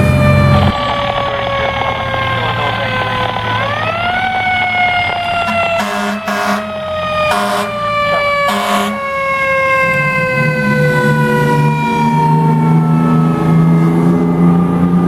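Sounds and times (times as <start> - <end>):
fire truck siren winding down: 0.0 - 15.0
truck engine pulling away: 0.0 - 15.0
air horn blasts: 5.3 - 9.1.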